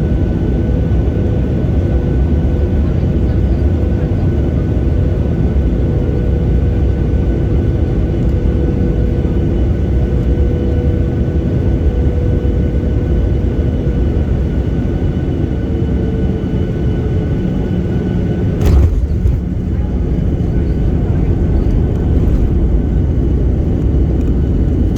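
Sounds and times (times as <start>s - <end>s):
airliner cabin engine rumble: 0.0s - 24.9s
engine whine: 15.8s - 24.9s.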